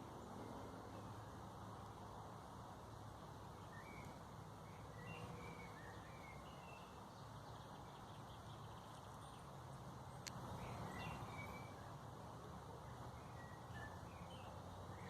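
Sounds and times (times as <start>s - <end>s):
bird chirps: 3.6s - 9.5s, 10.1s - 12.0s, 13.1s - 15.0s.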